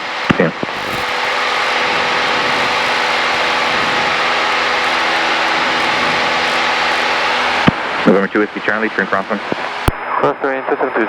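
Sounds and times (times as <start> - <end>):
engine and propeller drone: 0.0 - 10.0
airflow hiss: 0.6 - 8.2.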